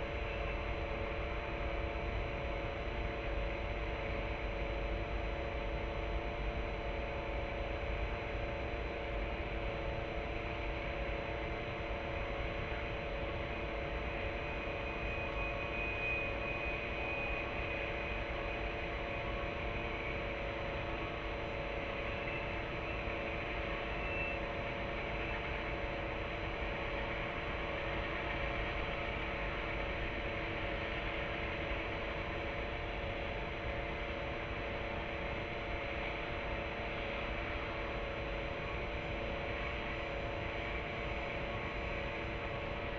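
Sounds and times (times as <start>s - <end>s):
steady hum and hiss: 0.0s - 4.8s.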